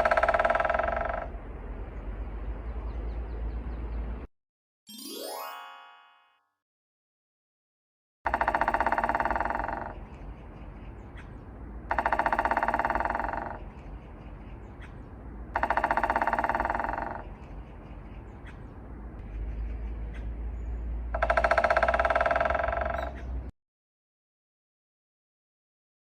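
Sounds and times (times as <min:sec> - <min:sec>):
woodpecker drumming: 0:00.0 - 0:01.4, 0:08.3 - 0:11.3, 0:11.9 - 0:14.9, 0:15.5 - 0:18.6, 0:21.0 - 0:23.5.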